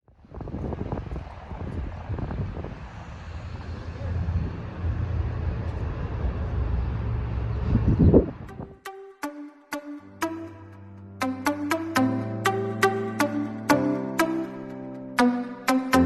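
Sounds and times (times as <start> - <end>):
wind buffeting microphone: 0.1 - 8.5
vehicle rumbling: 0.8 - 8.5.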